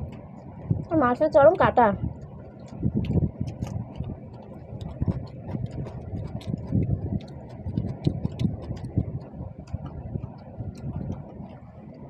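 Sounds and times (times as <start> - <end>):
chewing with wet mouth clicks: 2.2 - 11.6.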